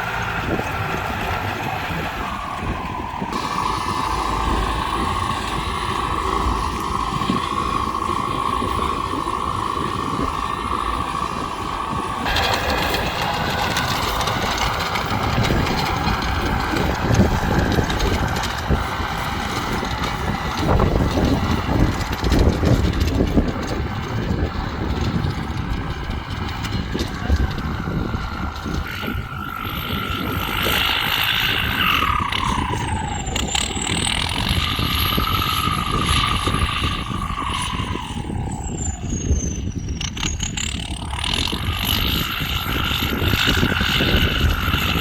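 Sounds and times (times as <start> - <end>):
steady whine: 0.0 - 45.0
tractor engine running: 0.0 - 45.0.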